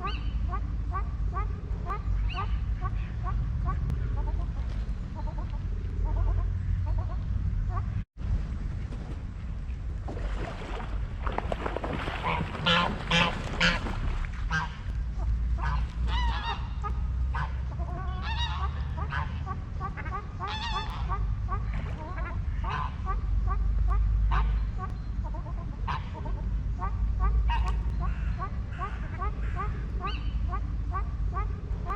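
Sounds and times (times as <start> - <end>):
low rumble: 0.0 - 31.9
waterfowl honking: 12.0 - 31.9.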